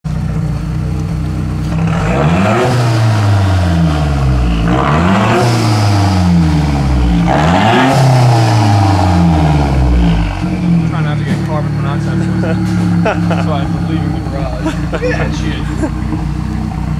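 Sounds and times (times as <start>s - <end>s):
car engine revving: 0.1s - 16.9s.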